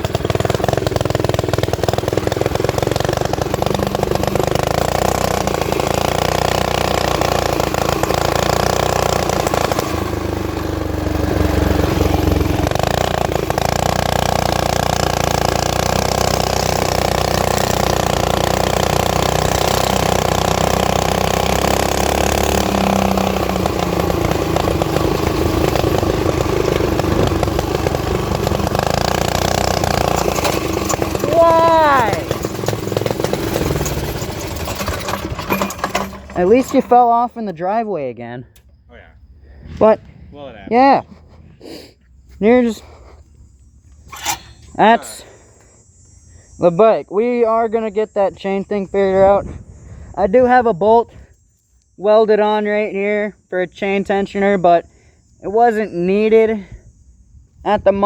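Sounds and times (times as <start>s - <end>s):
mini-bike engine running: 0.0s - 37.6s, 44.0s - 46.6s.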